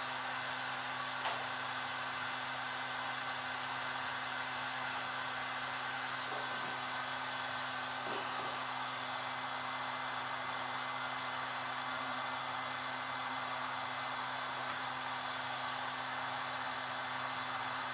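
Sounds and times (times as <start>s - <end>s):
heat gun humming and hissing: 1.0s - 17.9s
sharp click: 1.2s - 1.5s.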